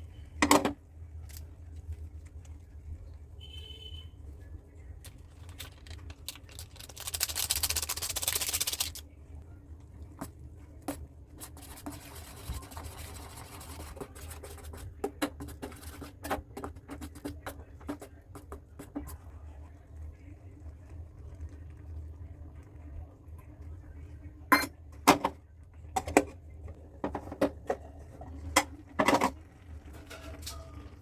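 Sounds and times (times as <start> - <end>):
low steady hum: 0.0 - 31.0
packaging rustling: 5.2 - 9.0.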